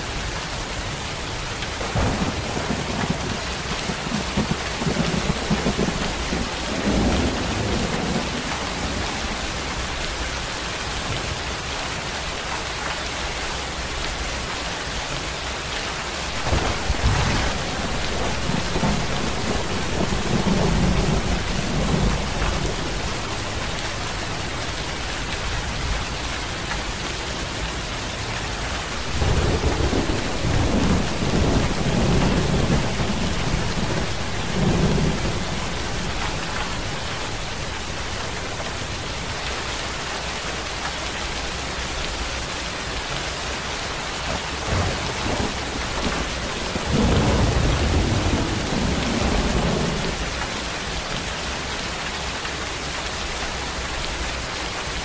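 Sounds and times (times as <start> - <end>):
steady rain falling: 0.0 - 55.0
low rolls of thunder: 1.7 - 10.0, 16.3 - 26.9, 28.9 - 39.7, 44.3 - 50.4.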